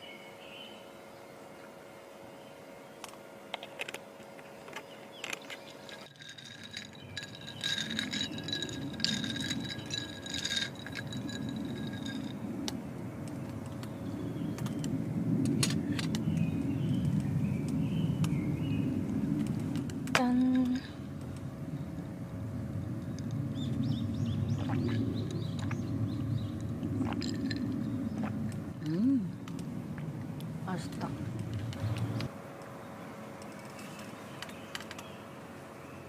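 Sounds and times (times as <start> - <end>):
clicks and rattles of gear: 3.1 - 12.3.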